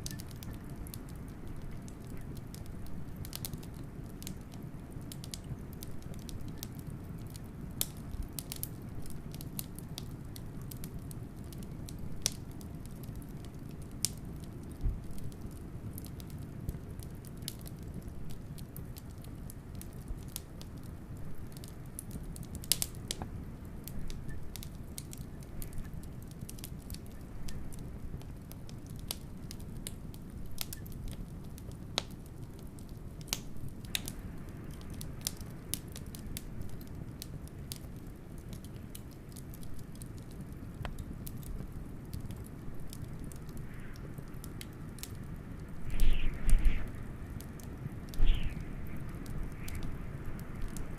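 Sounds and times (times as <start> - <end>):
wood fire crackling: 0.0 - 50.9
blizzard wind rumble: 43.3 - 50.9.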